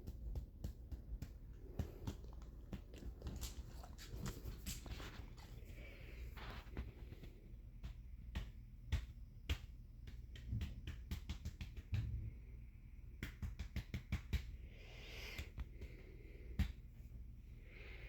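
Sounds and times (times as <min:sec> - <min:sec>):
dog making clicks and smacks: 0:00.1 - 0:05.8.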